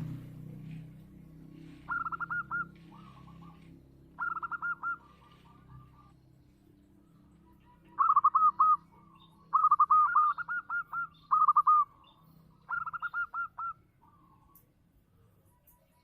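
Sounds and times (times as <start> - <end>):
dove cooing: 1.5 - 6.2, 7.5 - 14.4.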